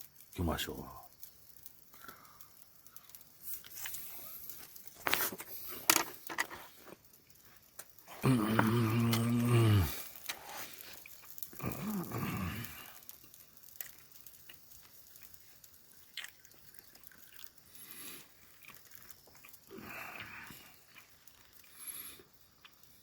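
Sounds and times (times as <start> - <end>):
person chewing food: 6.6 - 23.0
person humming mm: 8.1 - 10.0, 11.6 - 12.8
mouth clicks: 8.1 - 10.4.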